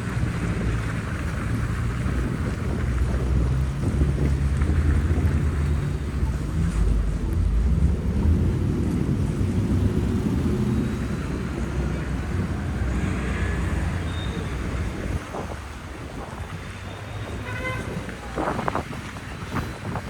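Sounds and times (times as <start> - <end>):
street traffic rumble: 0.0 - 20.0
wind buffeting microphone: 0.0 - 20.0.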